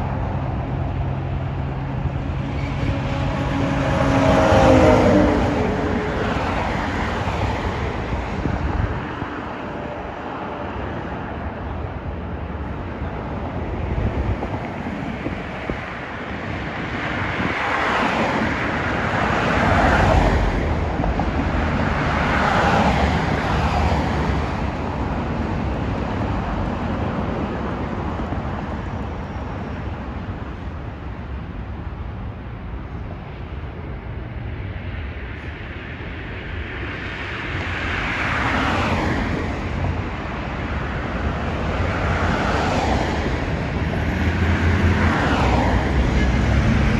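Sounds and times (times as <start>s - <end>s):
passing vehicles roaring: 0.0s - 46.9s.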